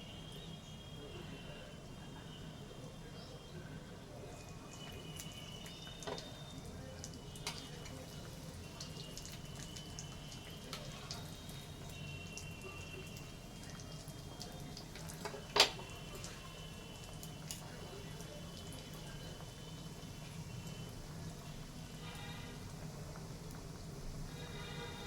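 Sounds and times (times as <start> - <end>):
clicks and taps of food handling: 4.9 - 6.3, 14.4 - 16.4.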